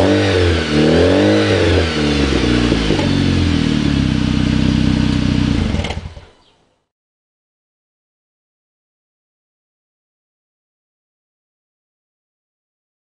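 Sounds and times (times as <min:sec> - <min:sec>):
car engine revving and idling: 0:00.0 - 0:06.3.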